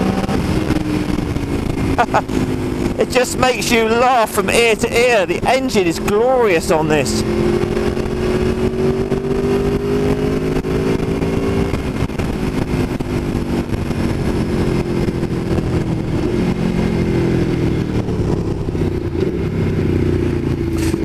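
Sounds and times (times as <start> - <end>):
motorcycle engine running: 0.0 - 3.3, 7.0 - 21.0
wind noise: 0.0 - 3.7.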